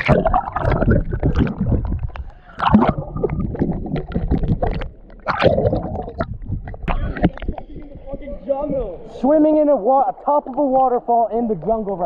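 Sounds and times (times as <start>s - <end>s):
water splashing and sloshing: 0.0s - 8.1s.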